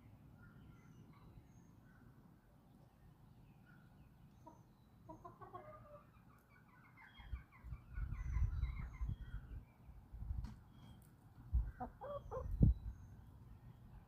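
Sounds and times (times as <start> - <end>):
chickens clucking: 4.4 - 9.2, 11.5 - 12.7.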